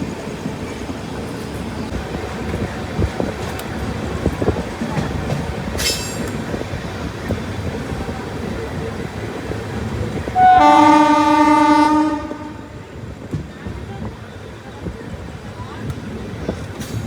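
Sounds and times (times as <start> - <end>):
train rumble and clatter: 0.0 - 17.0
locomotive horn: 10.4 - 12.8.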